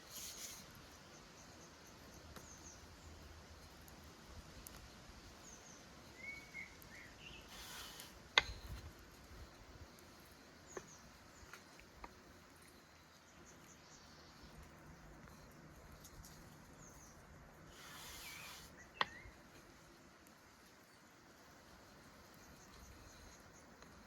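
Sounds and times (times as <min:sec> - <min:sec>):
faint bird chirps: 0:05.2 - 0:08.8, 0:09.4 - 0:15.6, 0:16.2 - 0:20.0, 0:20.7 - 0:24.0.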